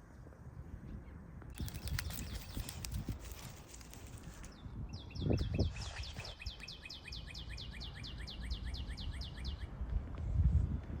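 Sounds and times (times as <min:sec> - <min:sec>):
songbird fast trill: 0:01.6 - 0:03.4, 0:04.4 - 0:09.7.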